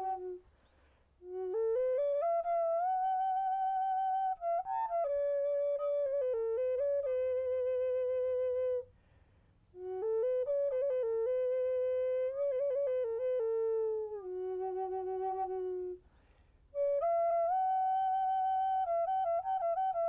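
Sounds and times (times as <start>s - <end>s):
slow solo flute melody: 0.0s - 20.0s.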